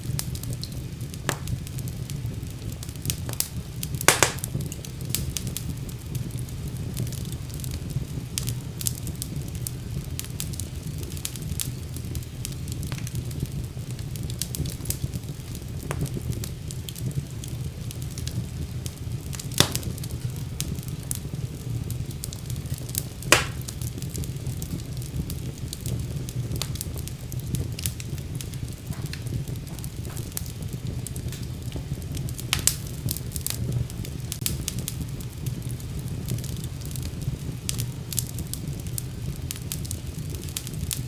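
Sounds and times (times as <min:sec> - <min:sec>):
fire burning in fireplace: 0:00.0 - 0:41.0
fire crackles and pops: 0:00.0 - 0:41.0.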